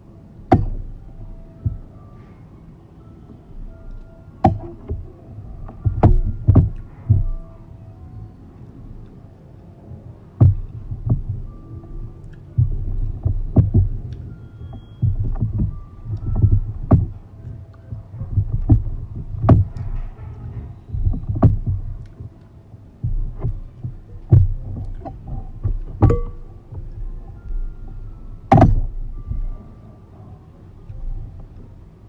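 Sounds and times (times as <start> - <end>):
sharp clicks and knocks: 0.5 - 1.0, 3.9 - 7.5, 10.3 - 29.6.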